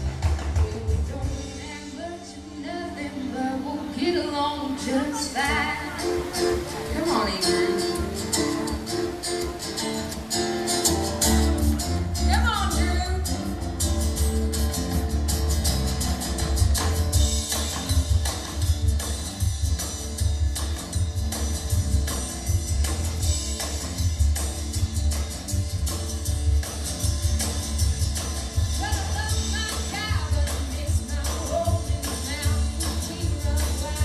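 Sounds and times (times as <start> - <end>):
folk-blues band playing: 0.0 - 34.0
person singing: 0.5 - 13.6, 28.8 - 34.0.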